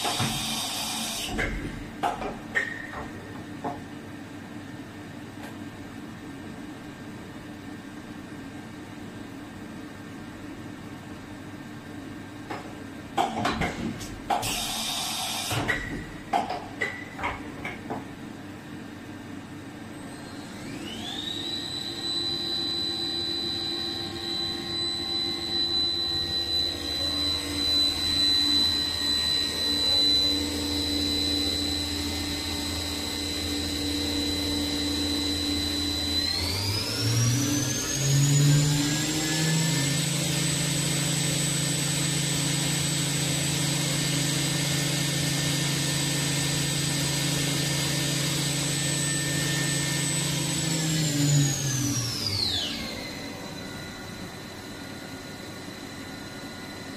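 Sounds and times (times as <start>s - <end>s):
machine spindle whine: 0.0s - 1.7s, 19.9s - 56.9s
low machine hum: 15.8s - 40.6s, 48.5s - 56.9s.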